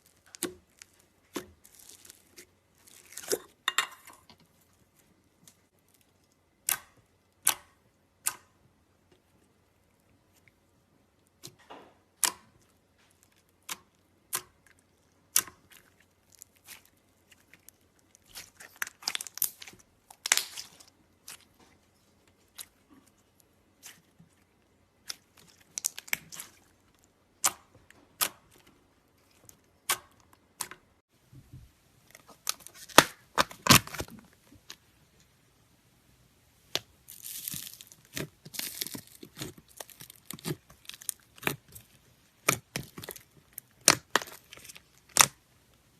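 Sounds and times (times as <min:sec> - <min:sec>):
slime crackling: 0:00.0 - 0:03.6, 0:12.2 - 0:30.8, 0:36.6 - 0:45.5
slime air pockets popping: 0:32.3 - 0:34.1.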